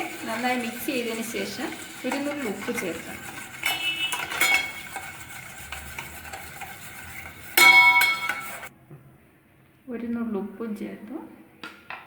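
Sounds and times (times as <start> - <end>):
spoon stirring eggs in a bowl: 0.0 - 8.7.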